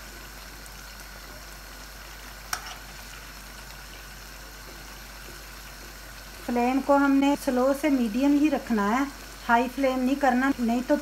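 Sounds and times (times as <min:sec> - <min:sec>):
chicken sizzling in a wok: 0:00.0 - 0:11.0.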